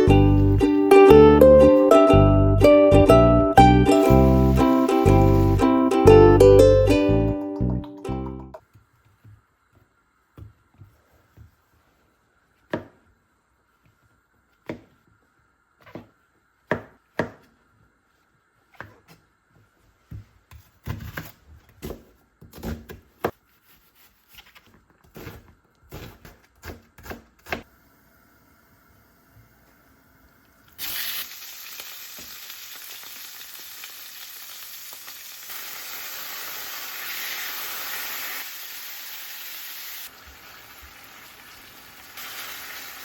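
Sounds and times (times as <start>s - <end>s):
knife chopping on cutting board: 12.6s - 13.0s, 15.8s - 17.5s.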